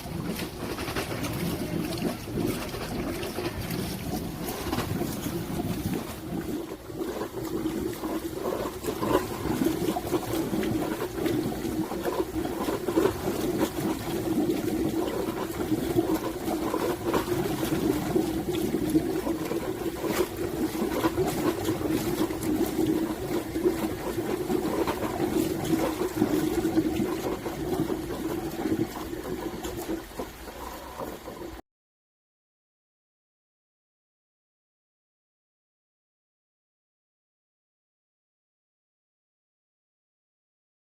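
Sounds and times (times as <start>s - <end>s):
water running through pipes: 0.0s - 31.6s.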